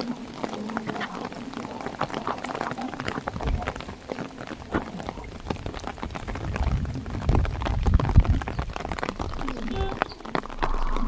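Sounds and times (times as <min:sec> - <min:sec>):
heavy rain on windshield: 0:00.0 - 0:11.0
low rumble: 0:05.0 - 0:11.0.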